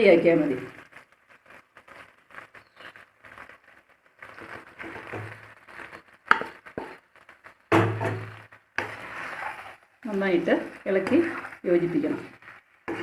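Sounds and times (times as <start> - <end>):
spoon stirring food in pan: 0.8 - 13.0
spoon knocking against pan: 7.7 - 8.3.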